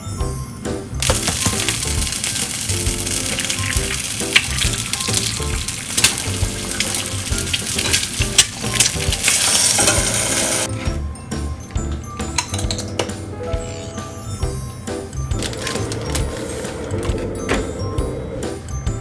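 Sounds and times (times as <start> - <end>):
soft background music: 0.0 - 19.0
food sizzling in a frying pan: 1.1 - 10.7.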